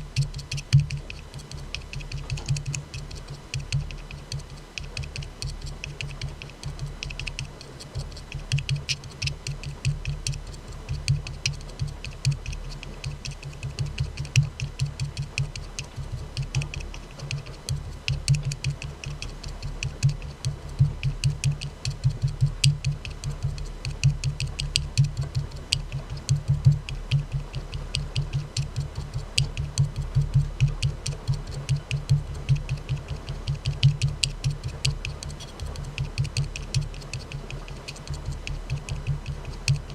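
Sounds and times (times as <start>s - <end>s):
fingers tapping aluminium can: 0.0s - 39.9s.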